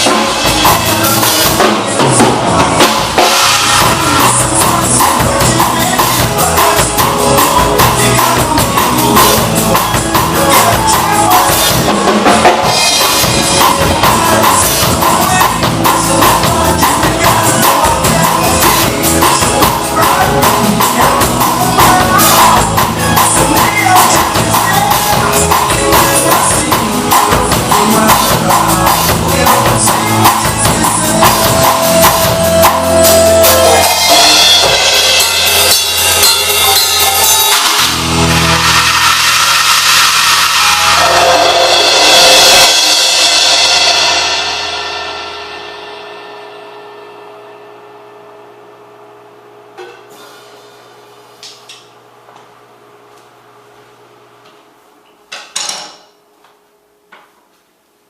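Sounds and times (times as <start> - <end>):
recorded band and singing: 0.0 - 44.3
drum kit playing a beat: 0.0 - 47.2
ringing cymbals: 31.8 - 48.5.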